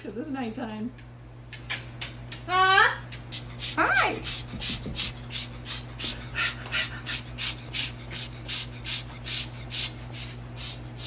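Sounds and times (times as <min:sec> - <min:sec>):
cockatoo huffing: 0:03.3 - 0:11.0.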